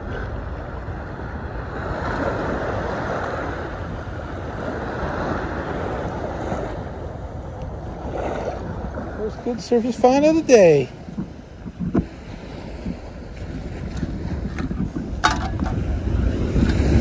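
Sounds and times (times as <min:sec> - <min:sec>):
surf washing on beach: 0:00.0 - 0:17.0
wind rumbling on microphone: 0:00.0 - 0:17.0.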